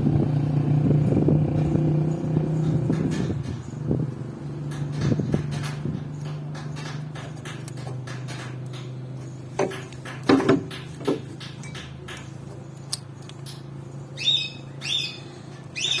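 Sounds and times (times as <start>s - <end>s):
knocks: 2.6s - 3.7s, 4.6s - 9.0s, 9.6s - 12.3s.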